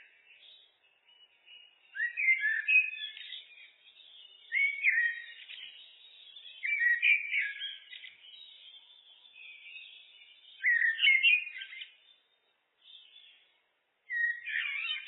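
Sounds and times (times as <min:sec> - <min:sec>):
blackbird singing fluty phrases: 0:00.0 - 0:15.0
soft bird twittering: 0:00.0 - 0:15.0.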